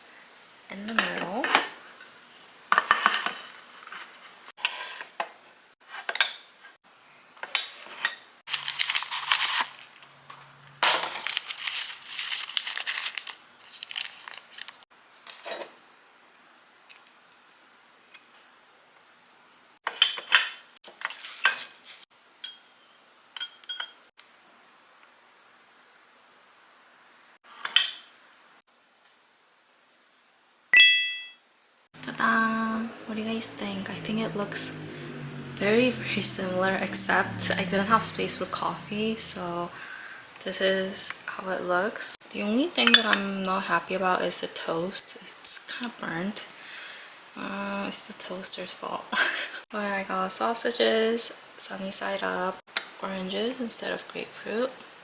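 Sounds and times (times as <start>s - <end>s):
dishes and cutlery clinking: 22.4s - 24.4s.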